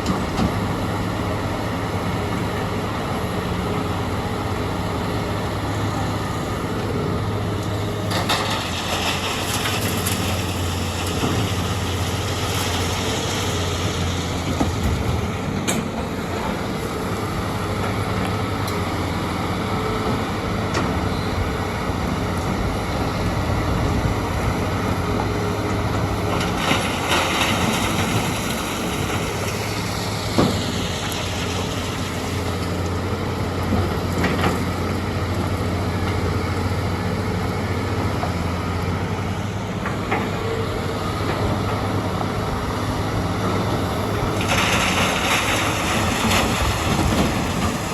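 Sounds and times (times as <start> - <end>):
diesel machinery droning: 0.0 - 47.9.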